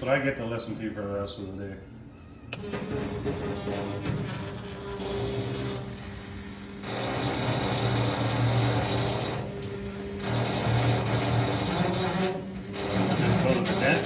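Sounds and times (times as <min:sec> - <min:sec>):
small motor buzzing: 0:06.7 - 0:14.0.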